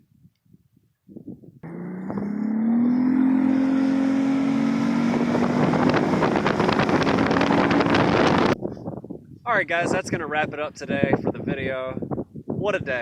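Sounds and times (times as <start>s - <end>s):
wind noise on microphone: 0.0s - 13.0s
outboard motor running: 1.6s - 8.6s.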